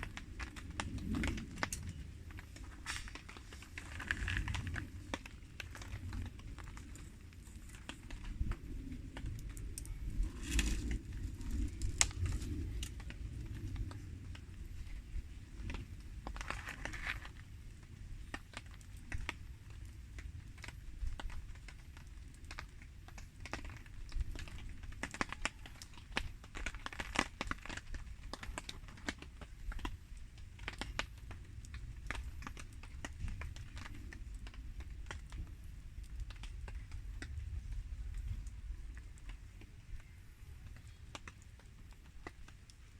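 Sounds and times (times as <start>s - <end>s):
steady low rumble: 0.0s - 22.3s
campfire crackling and popping: 0.0s - 42.9s
rain ticking: 0.0s - 42.9s.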